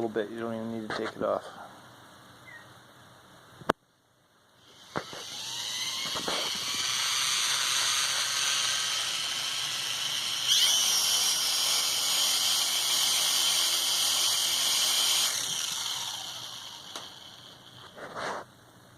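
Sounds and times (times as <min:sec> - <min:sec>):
drone motors whining: 0:04.6 - 0:18.2.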